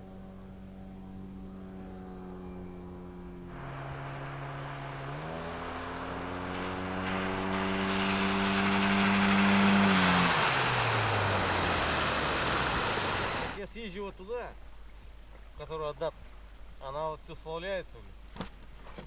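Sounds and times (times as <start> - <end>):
boat motor running: 0.7 - 13.6.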